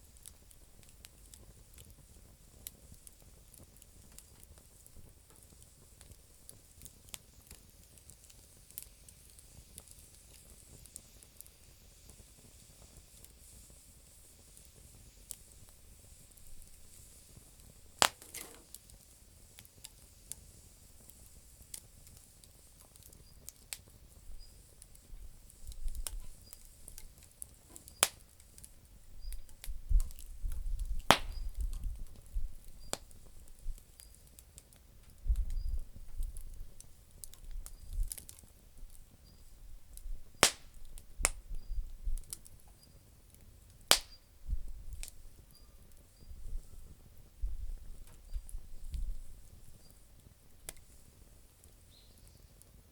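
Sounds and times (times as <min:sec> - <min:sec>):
campfire crackling: 0:00.0 - 0:52.9
loud sharp pops: 0:18.0 - 0:19.0, 0:27.6 - 0:28.2, 0:31.0 - 0:31.6, 0:40.4 - 0:41.4, 0:43.9 - 0:44.2.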